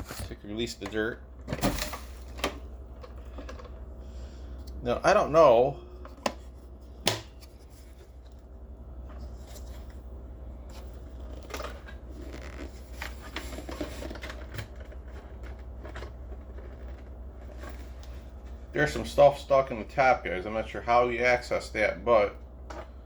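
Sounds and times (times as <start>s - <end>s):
rustling of plastic and debris: 10.6s - 18.7s.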